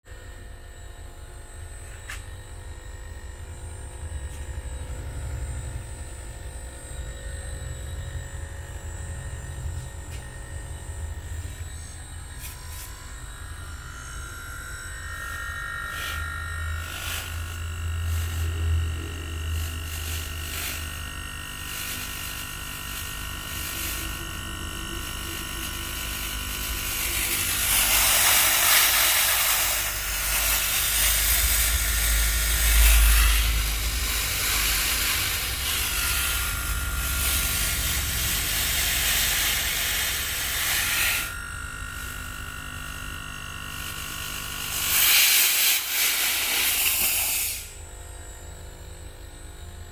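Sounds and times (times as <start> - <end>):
air conditioner electronic whine: 0.0 - 49.9
loud hiss: 25.3 - 41.4, 44.7 - 47.8.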